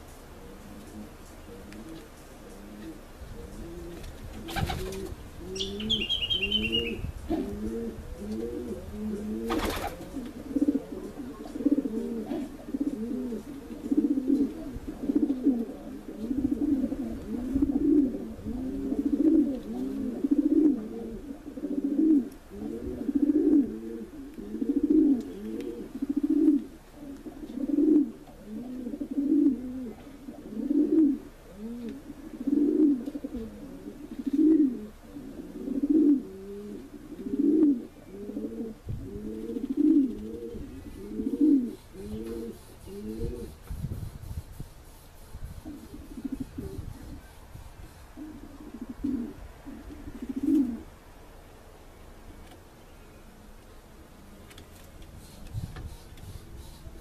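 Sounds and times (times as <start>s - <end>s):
pigeons cooing: 0.0s - 44.6s, 45.4s - 51.0s
high twittering chirp: 5.6s - 7.2s.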